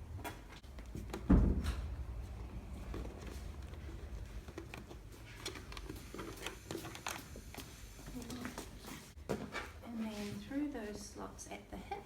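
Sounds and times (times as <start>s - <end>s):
clicks and rustling of straps: 2.7s - 7.7s.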